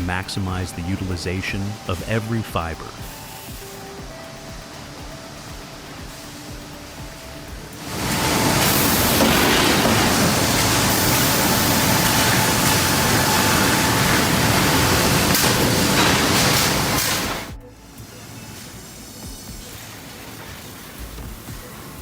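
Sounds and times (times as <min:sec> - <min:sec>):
sawmill machinery rushing noise: 0:07.8 - 0:17.5.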